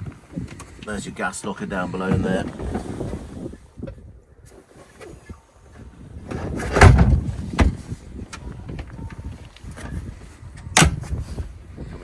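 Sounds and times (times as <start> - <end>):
thuds and knocks of boat fittings: 2.0 - 4.1, 6.2 - 12.0.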